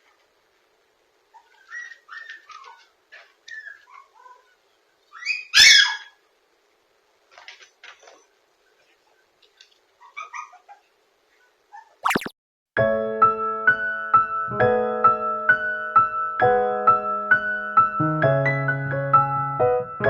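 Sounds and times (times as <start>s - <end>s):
puppy crying: 3.5s - 6.2s, 10.0s - 10.9s.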